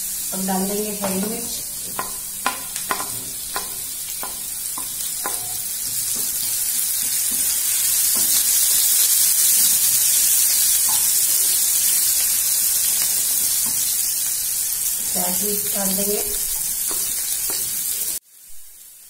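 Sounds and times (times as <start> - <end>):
chillies sizzling in hot oil: 0.0 - 19.0
spatula tapping: 0.6 - 8.8, 10.8 - 11.2, 16.2 - 18.0.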